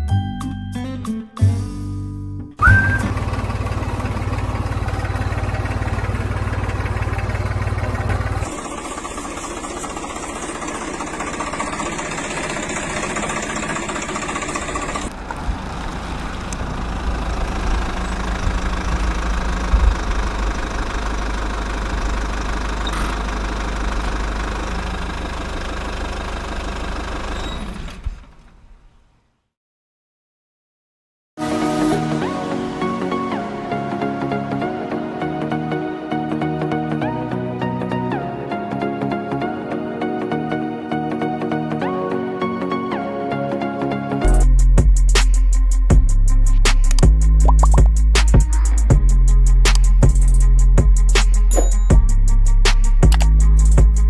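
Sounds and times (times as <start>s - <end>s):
tractor engine running: 2.6s - 28.6s, 45.9s - 54.0s.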